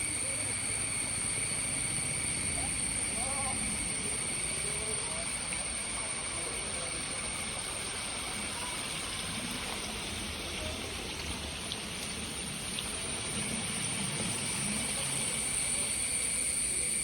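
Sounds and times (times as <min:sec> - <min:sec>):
high thin whine: 0:00.0 - 0:09.5
flowing water rushing: 0:05.3 - 0:15.8.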